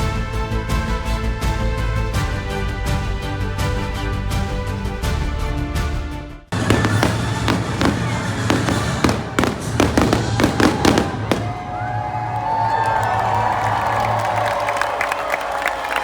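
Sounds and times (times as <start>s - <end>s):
music: 0.0s - 11.7s
fireworks bangs and crackles: 6.5s - 12.4s
whistling fireworks: 6.6s - 13.4s.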